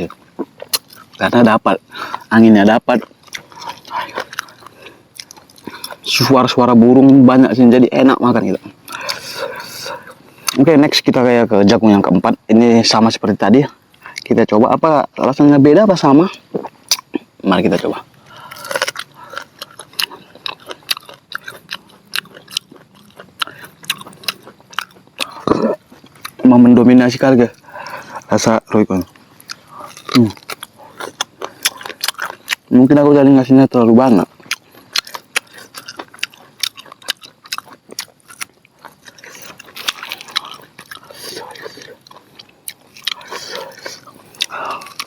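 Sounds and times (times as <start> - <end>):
chewing corn on the cob: 0.0 - 14.5, 15.1 - 45.0.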